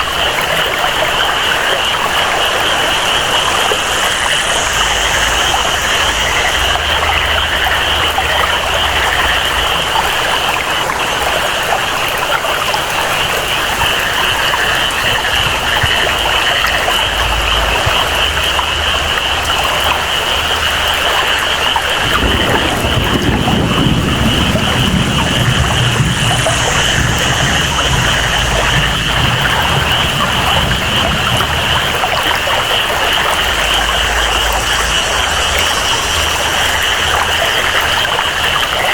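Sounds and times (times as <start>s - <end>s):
flowing water rushing: 0.0s - 38.9s
steady rain: 0.0s - 38.9s
high-pitched jungle chorus: 13.8s - 38.9s.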